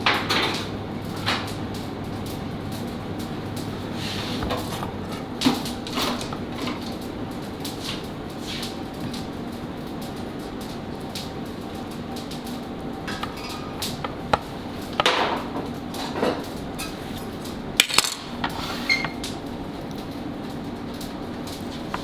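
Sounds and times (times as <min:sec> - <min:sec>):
steady low hum: 0:00.0 - 0:18.5
utensils and dishes clinking: 0:13.0 - 0:14.0, 0:15.0 - 0:19.2.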